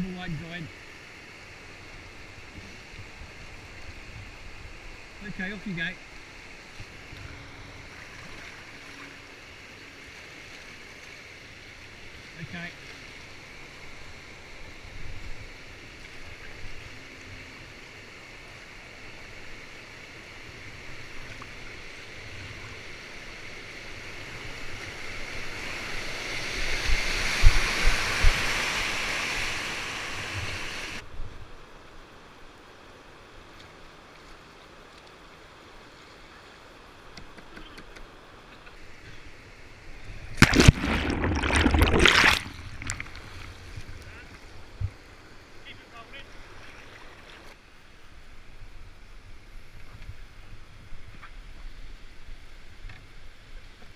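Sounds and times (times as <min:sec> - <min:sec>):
water rushing over weir: 0:01.5 - 0:31.1, 0:37.6 - 0:47.6
loud splashing: 0:40.3 - 0:43.6.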